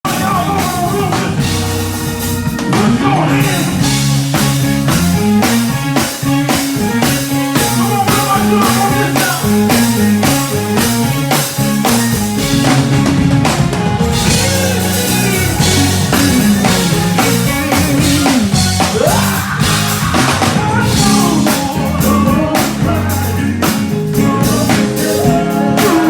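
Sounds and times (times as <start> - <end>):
bass notes: 0.0 - 26.0
drum kit beat: 0.0 - 26.0
guitar: 0.0 - 26.0.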